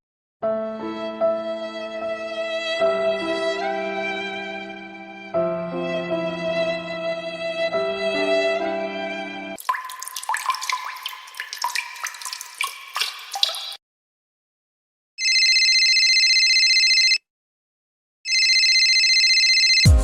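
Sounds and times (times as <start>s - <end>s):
water drops plinking: 9.6s - 13.8s
telephone ringing: 15.2s - 17.2s, 18.3s - 19.9s.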